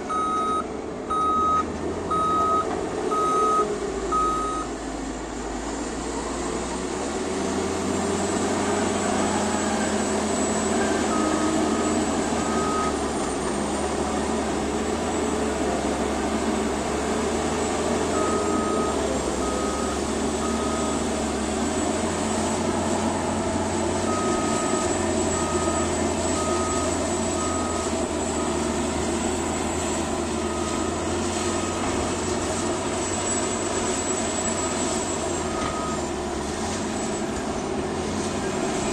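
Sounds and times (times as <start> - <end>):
diesel bulldozer engine running: 0.0 - 38.9
reversing alarm beeps: 0.1 - 4.7, 9.2 - 13.0, 18.1 - 21.3, 22.4 - 28.8, 30.3 - 36.1.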